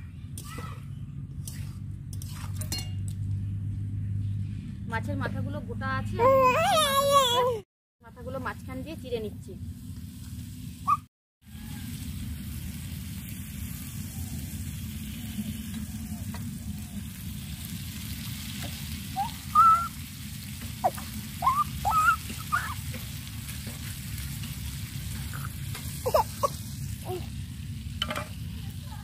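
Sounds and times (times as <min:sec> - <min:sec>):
curry sizzling in a pan: 0:11.5 - 0:29.0
high chirping calls: 0:19.2 - 0:19.9, 0:20.8 - 0:22.8.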